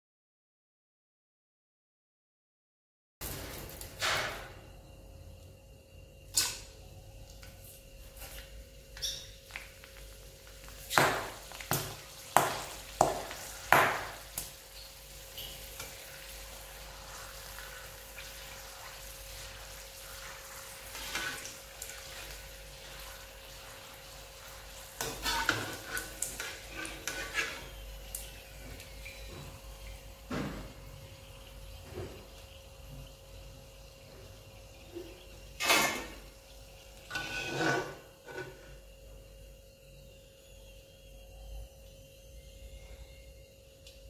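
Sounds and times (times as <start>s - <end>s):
thin steady hum: 14.1s - 44.0s
utensils knocking against pots: 25.0s - 27.7s.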